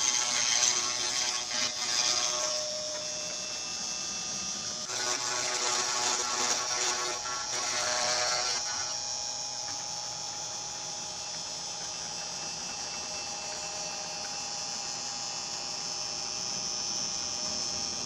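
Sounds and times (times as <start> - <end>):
router bit cutting plywood: 0.0 - 18.0
router spindle motor whining: 0.0 - 18.0.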